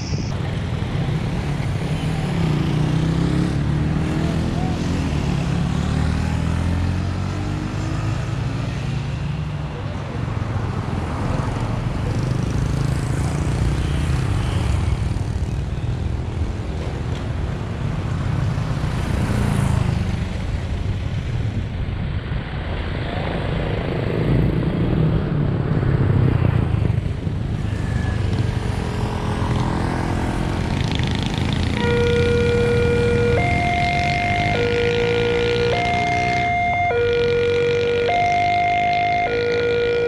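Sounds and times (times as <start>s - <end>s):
road noise: 0.0s - 40.0s
sustained pitched tone: 31.8s - 40.0s.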